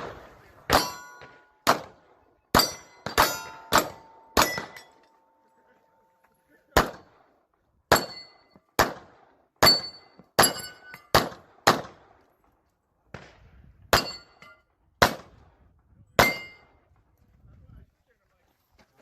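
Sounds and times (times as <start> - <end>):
pistol shots: 0.0 - 5.0, 6.7 - 7.3, 7.9 - 12.2, 15.0 - 15.4, 16.2 - 16.7
steel plates ringing: 0.7 - 1.5, 2.6 - 5.6.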